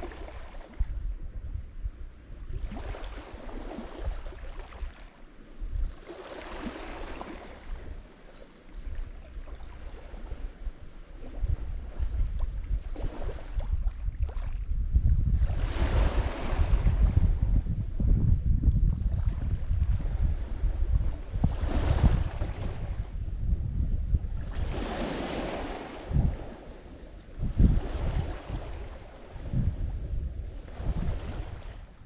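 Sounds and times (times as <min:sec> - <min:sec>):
wind rumble on microphone: 0:00.0 - 0:32.0
waves washing onto shore: 0:02.6 - 0:14.6, 0:19.1 - 0:23.2, 0:24.4 - 0:29.7.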